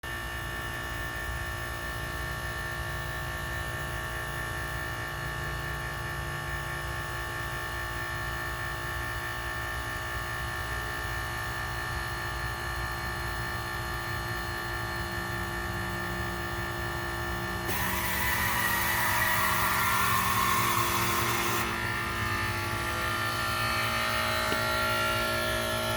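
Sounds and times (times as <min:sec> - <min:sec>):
air conditioning unit humming: 0:11.8 - 0:25.9
high-pitched whine: 0:14.1 - 0:25.9.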